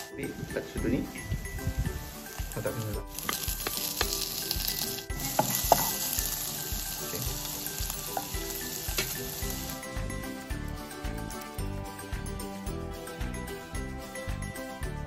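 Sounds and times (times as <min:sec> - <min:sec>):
meat sizzling in a wok: 0:00.0 - 0:10.6
metal spoon scraping a pan: 0:02.2 - 0:06.6.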